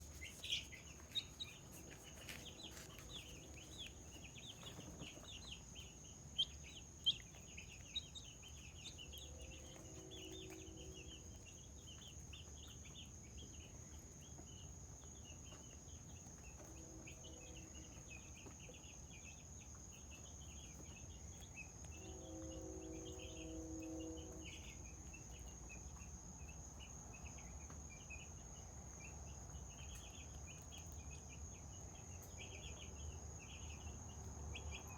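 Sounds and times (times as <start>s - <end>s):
chickens chirping: 0.0s - 13.4s.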